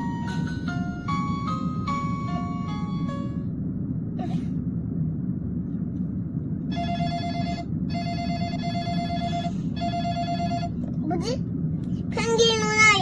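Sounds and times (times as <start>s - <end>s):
low rumble: 0.0s - 13.0s
electronic phone ring tone: 6.7s - 10.7s.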